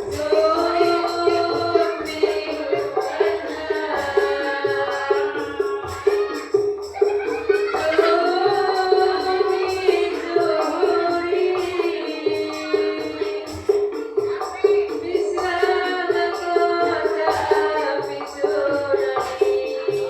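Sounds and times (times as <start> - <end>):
hand percussion beating: 0.0 - 20.0
voices singing: 0.0 - 20.0.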